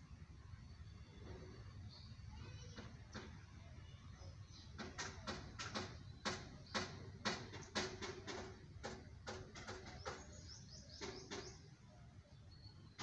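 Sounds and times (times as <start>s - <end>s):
birds chirping: 0.5s - 13.0s.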